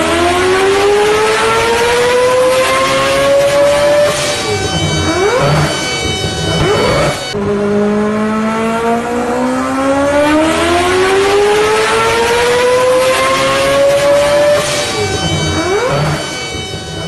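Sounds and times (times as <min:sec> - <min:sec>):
electric motor whine rising: 0:00.0 - 0:17.0
train rushing noise: 0:04.1 - 0:07.6.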